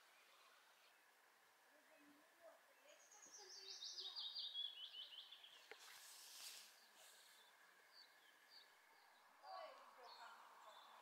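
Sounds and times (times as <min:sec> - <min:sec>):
faint chirps: 0:00.0 - 0:11.0
songbird singing: 0:00.0 - 0:11.0
soft rustling hiss: 0:05.4 - 0:08.5.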